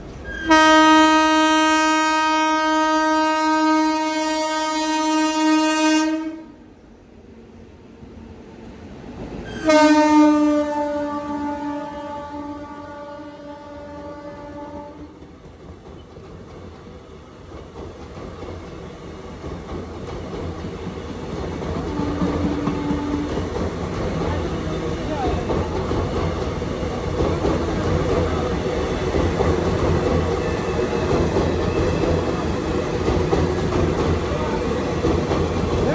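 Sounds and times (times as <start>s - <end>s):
train rumble and wheel clatter: 0.0s - 35.9s
locomotive horn blast: 0.3s - 6.6s, 9.5s - 15.1s, 21.9s - 23.4s.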